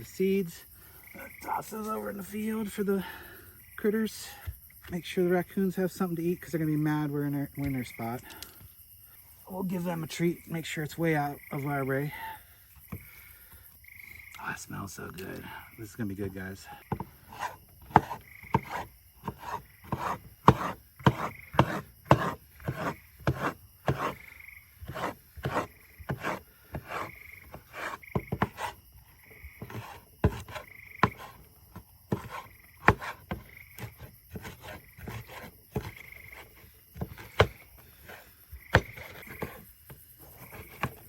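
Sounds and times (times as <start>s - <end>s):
knife chopping on cutting board: 16.9s - 24.2s, 32.1s - 33.4s.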